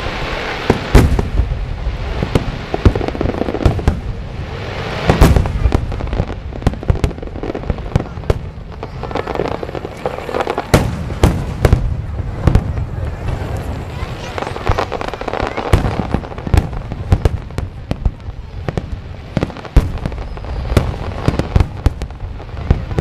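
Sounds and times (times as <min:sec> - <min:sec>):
firework booms: 0:00.0 - 0:23.0
firework cracks and crackling: 0:00.0 - 0:23.0.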